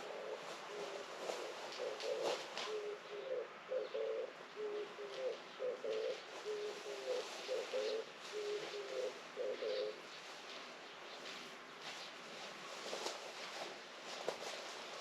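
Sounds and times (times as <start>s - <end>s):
dove cooing: 0.0s - 10.1s.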